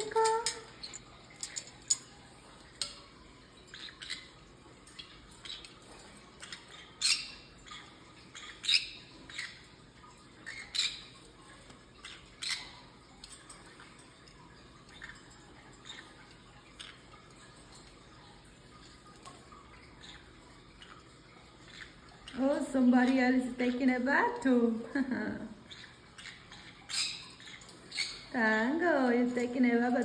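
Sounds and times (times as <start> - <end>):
parrot squawking: 25.7 - 28.4.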